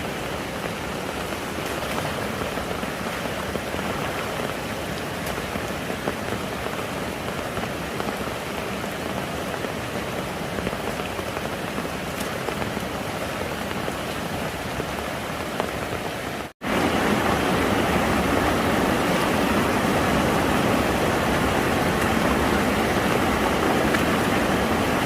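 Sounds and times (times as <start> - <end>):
rain falling: 0.0 - 25.0
rush of flowing water: 0.0 - 25.0.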